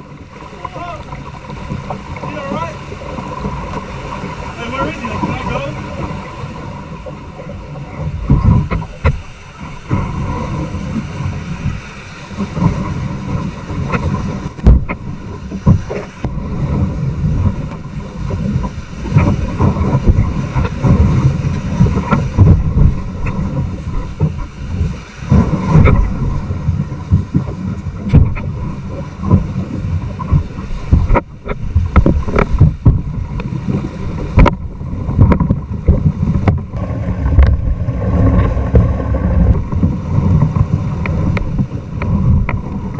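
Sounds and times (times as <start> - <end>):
paddle knocking hull: 0.0 - 42.9
rushing white water: 0.0 - 42.9
wind rumbling on microphone: 0.0 - 42.9.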